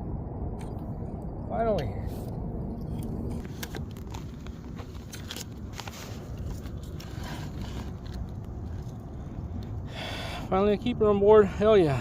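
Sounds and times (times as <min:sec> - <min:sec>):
steady low rumble: 0:00.0 - 0:12.0
handling clicks knocks and scrapes: 0:02.9 - 0:09.0.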